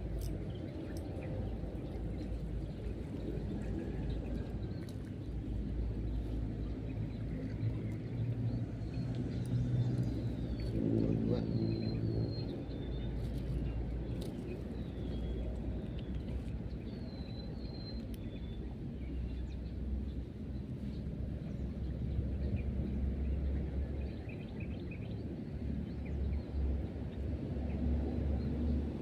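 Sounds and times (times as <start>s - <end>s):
low distant rumble: 0.0s - 17.1s.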